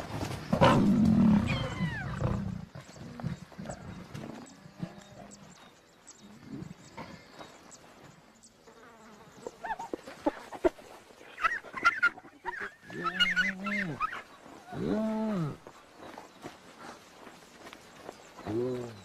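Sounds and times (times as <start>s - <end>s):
hyenas squealing and yelping: 0.6s - 2.4s, 11.3s - 15.0s.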